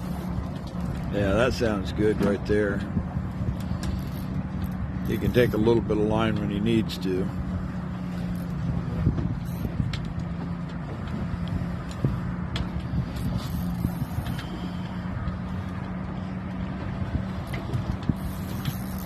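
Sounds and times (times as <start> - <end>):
low mechanical hum: 0.0 - 19.0
light clicks and knocks: 8.2 - 18.9.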